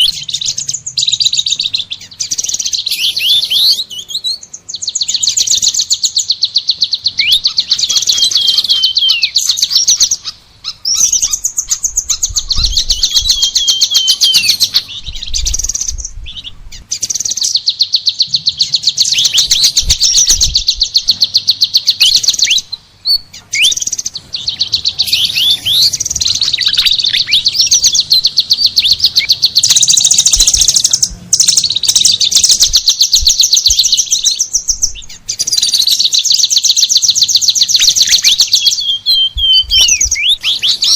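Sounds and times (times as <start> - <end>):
songbird trills and whistles: 0.0 - 40.9.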